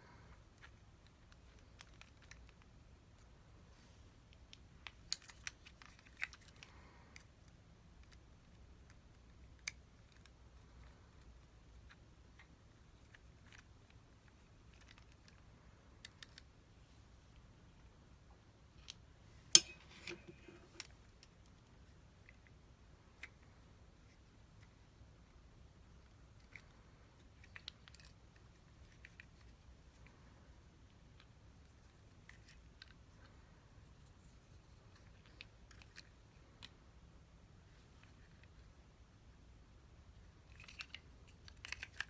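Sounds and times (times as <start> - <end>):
clicks and taps of small tools: 19.6 - 20.9.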